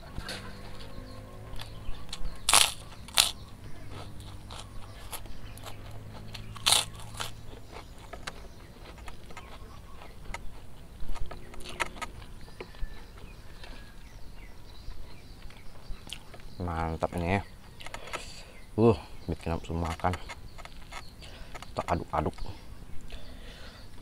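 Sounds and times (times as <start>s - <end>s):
sharp crunches: 0.0s - 14.1s
close chewing of food: 0.0s - 18.6s.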